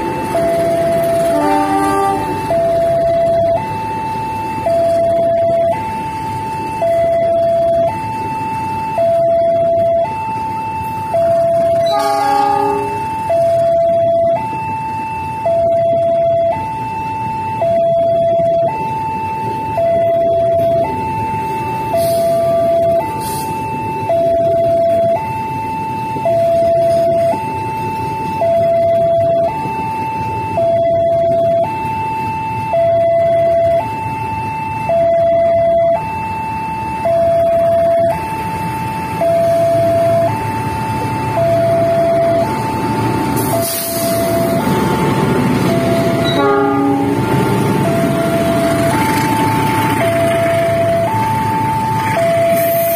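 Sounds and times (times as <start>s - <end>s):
train rumble: 0.0s - 16.8s, 36.8s - 52.9s
two-tone crossing alarm: 0.0s - 52.9s.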